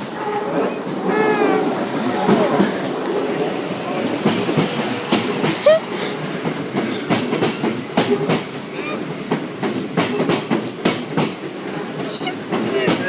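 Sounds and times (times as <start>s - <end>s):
train rumble: 0.0s - 13.0s
train wheels clattering over rail joints: 4.1s - 5.6s, 6.2s - 13.0s.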